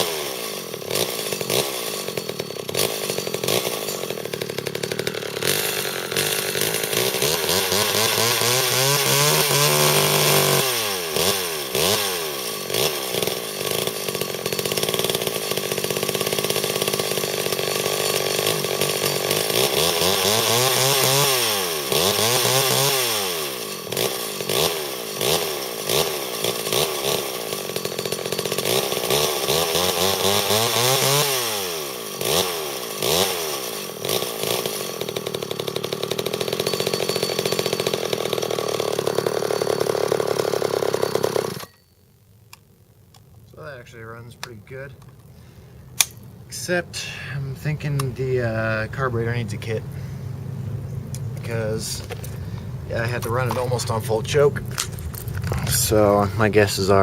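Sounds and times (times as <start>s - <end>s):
chainsaw engine revving and idling: 0.0s - 41.8s, 42.5s - 57.0s.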